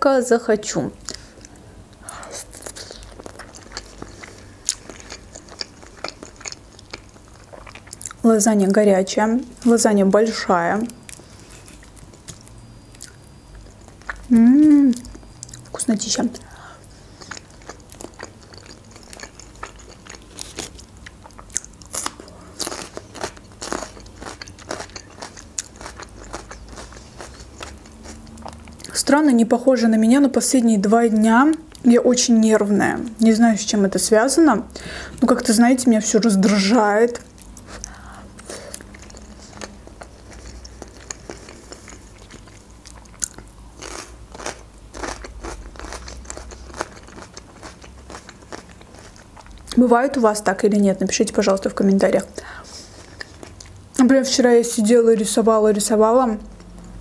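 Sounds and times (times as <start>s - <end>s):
wet chewing: 2.4s - 8.2s, 16.4s - 29.0s, 37.1s - 49.8s
crunching bites of pepper: 17.2s - 28.9s, 38.8s - 49.7s.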